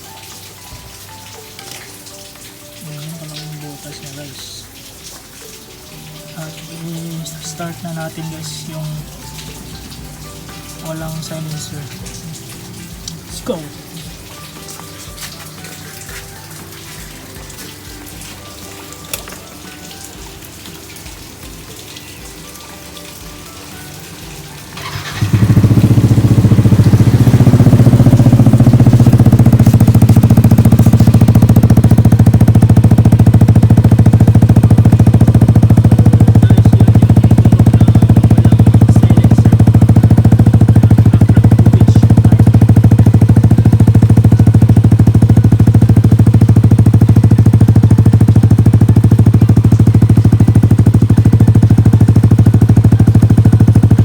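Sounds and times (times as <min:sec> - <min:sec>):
scooter engine starting and idling: 0:24.0 - 0:54.0.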